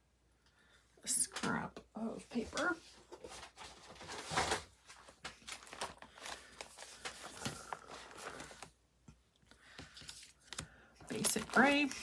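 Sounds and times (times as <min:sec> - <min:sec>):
paper rustling: 0:02.4 - 0:08.8, 0:09.7 - 0:12.0.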